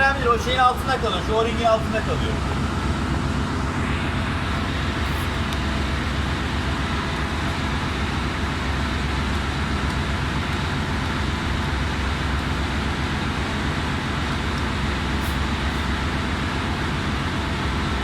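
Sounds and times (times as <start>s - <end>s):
engine-room machinery drone: 0.0s - 18.0s.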